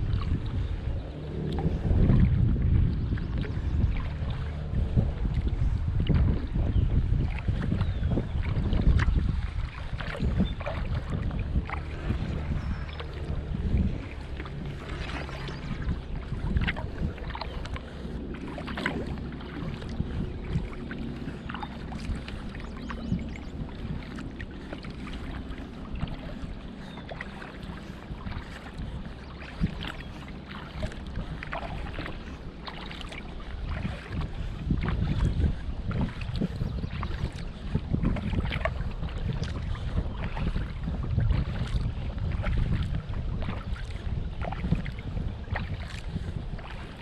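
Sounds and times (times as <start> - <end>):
paddle splashing in water: 0.0 - 47.0
wind rumble on microphone: 0.0 - 47.0.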